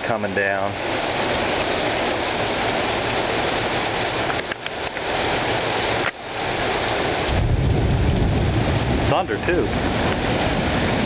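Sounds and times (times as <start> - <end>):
heavy rain pouring: 0.0 - 11.0
low rumble of thunder: 7.2 - 11.0.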